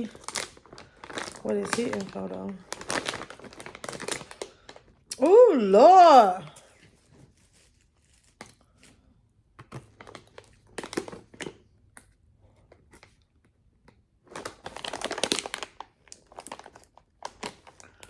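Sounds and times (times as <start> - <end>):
plastic packaging crinkling: 0.0 - 5.1, 9.7 - 11.6, 14.3 - 18.0.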